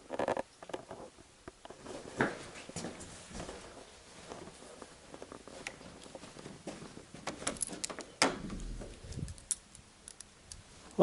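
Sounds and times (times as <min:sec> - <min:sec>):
footsteps on hard floor: 0:01.9 - 0:07.8.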